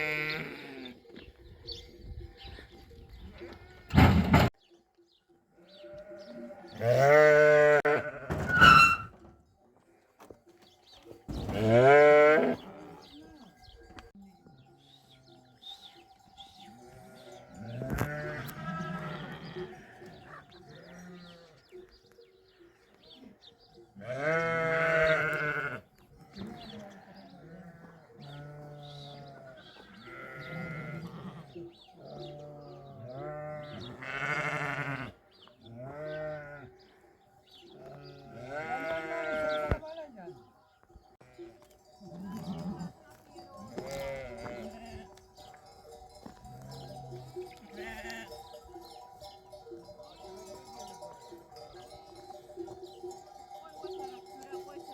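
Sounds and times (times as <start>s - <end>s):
sheep bleating: 0.0s - 1.0s, 5.6s - 9.1s, 11.5s - 13.3s, 16.8s - 21.7s, 24.0s - 36.8s, 37.8s - 39.9s, 43.7s - 45.2s, 46.4s - 48.4s.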